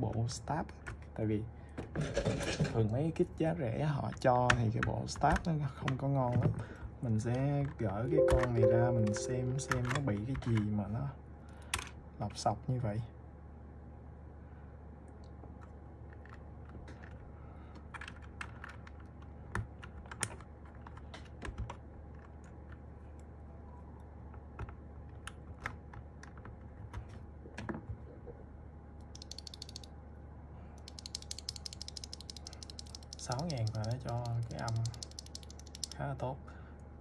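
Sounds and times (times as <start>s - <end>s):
keyboard keys clicking: 8.1s - 10.1s, 29.2s - 29.9s, 30.8s - 36.0s.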